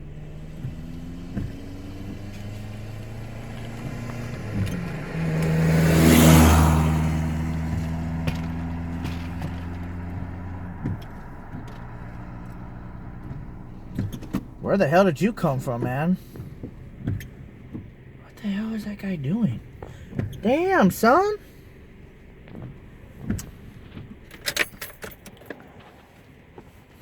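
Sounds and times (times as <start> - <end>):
vehicle passing by: 0.0 - 24.2
low engine hum: 0.0 - 27.0.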